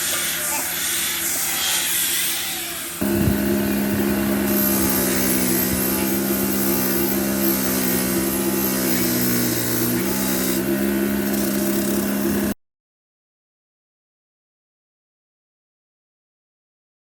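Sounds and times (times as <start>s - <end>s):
machine humming loudly: 0.0s - 12.6s.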